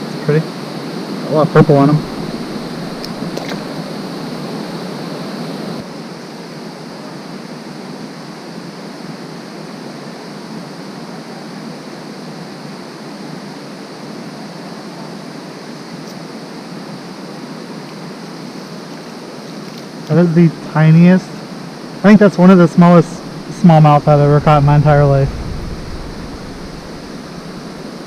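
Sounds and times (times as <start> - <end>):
creek water flowing: 1.6 - 4.1, 20.4 - 28.0.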